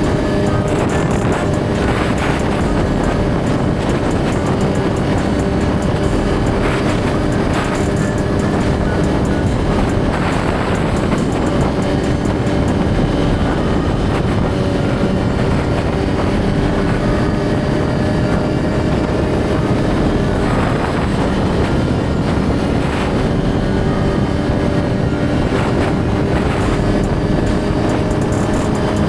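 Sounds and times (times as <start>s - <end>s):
motorcycle engine running: 0.0s - 29.0s
wind noise on microphone: 0.0s - 29.0s.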